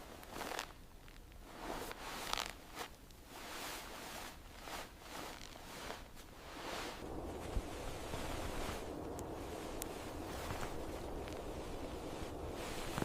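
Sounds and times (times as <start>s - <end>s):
rustling scraping strokes: 0.0s - 13.0s.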